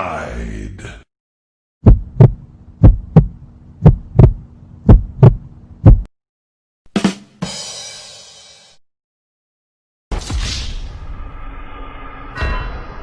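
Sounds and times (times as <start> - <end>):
heartbeat thumps: 1.8 - 6.1
low hum: 1.8 - 6.1.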